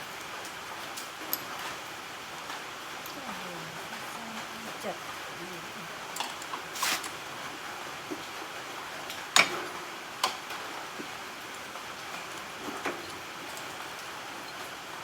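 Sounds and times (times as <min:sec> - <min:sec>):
scraping rustle: 0:06.4 - 0:07.2.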